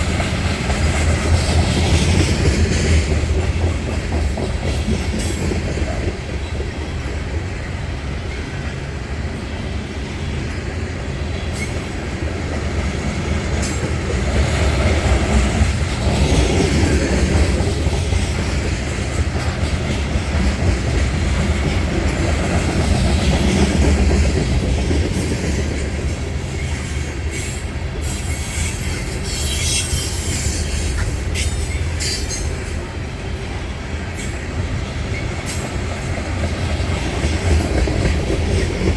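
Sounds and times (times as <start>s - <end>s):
train cars rumbling past: 0.0s - 38.9s
high wheel squeals: 26.6s - 32.7s.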